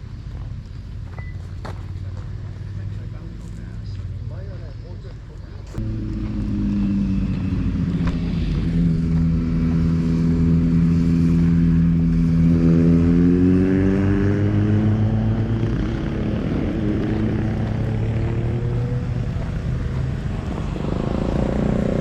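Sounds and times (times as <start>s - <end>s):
motorcycle engine revving: 5.4s - 22.0s.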